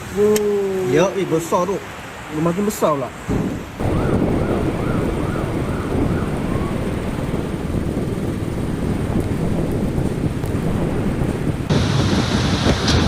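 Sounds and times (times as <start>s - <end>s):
heavy rain: 0.0s - 13.0s
wind buffeting microphone: 3.1s - 13.0s.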